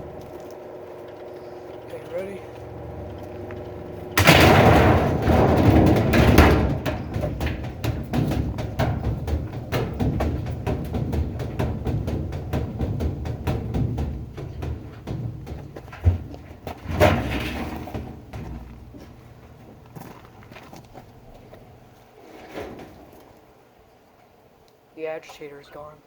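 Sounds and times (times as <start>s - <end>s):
drum banging and clattering: 0.0s - 19.3s
washing machine crashing: 1.9s - 19.0s.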